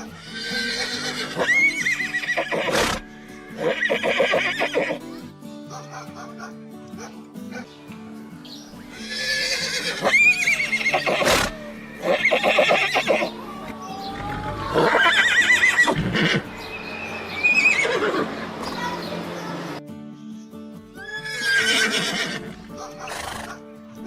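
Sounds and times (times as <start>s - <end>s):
horses neighing: 0.0s - 5.1s, 8.9s - 16.5s, 17.4s - 18.6s, 21.0s - 23.6s
background music: 0.0s - 24.0s.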